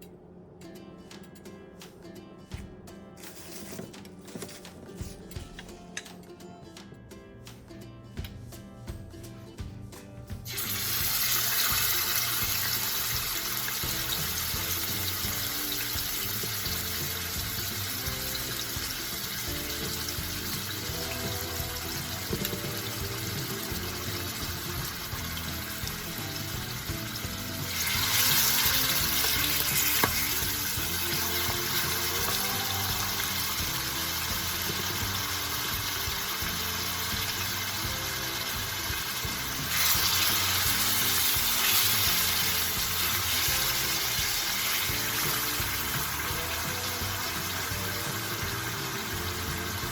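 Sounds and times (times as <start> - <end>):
background music: 0.0 - 49.9
meat sizzling in a pan: 10.5 - 22.2, 22.8 - 49.9.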